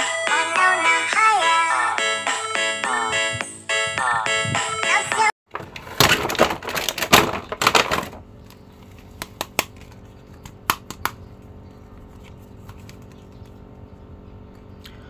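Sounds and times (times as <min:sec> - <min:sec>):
plastic packaging crinkling: 0:05.5 - 0:10.2.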